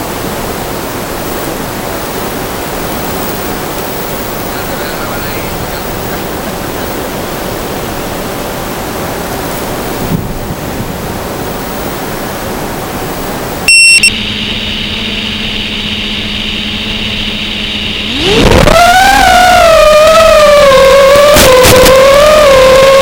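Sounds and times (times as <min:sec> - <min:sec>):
steady electric hum: 0:00.0 - 0:23.0
short loud beep: 0:13.6 - 0:18.7.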